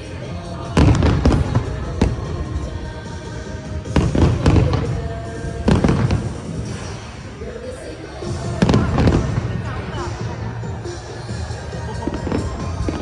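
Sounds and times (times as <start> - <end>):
fireworks bursting with loud bangs: 0.6 - 7.4, 8.3 - 10.1.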